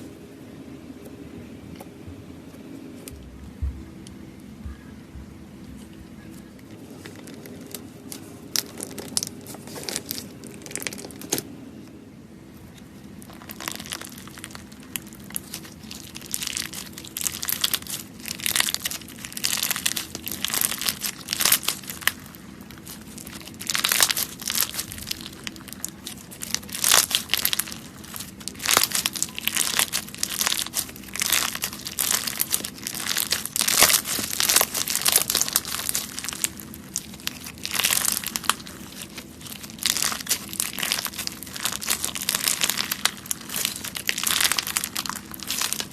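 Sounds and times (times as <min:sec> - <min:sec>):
crunchy slime crackling: 0:05.7 - 0:11.5, 0:12.5 - 0:45.9.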